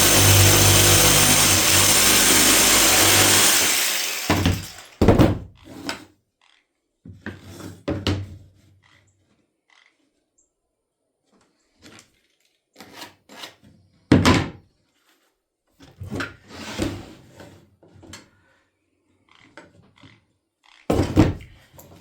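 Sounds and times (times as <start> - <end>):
wooden trim knocks and thuds: 0.0 - 5.5, 20.9 - 21.6.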